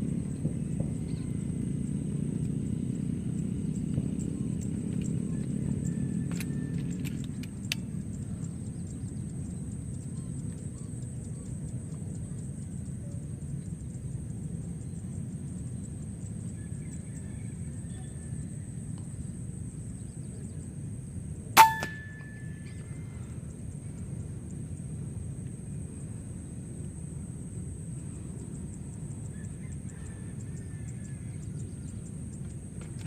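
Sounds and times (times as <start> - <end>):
steady low rumble: 0.0 - 17.8
brief metallic ring: 21.6 - 22.9.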